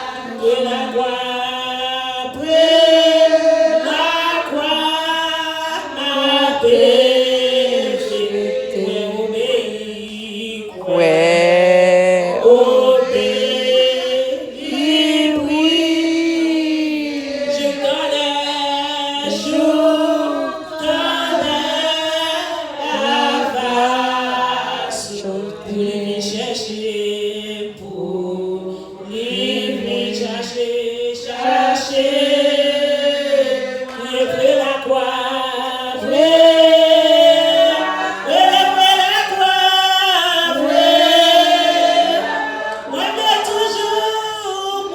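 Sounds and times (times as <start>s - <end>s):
group singing worship song: 0.0s - 44.9s.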